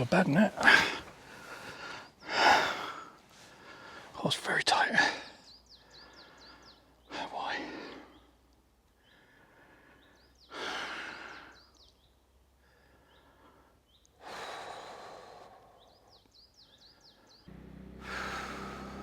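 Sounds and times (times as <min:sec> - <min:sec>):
small birds chirping: 0:00.0 - 0:19.0
low steady hum: 0:17.5 - 0:19.0
man sighing heavily: 0:18.0 - 0:19.0.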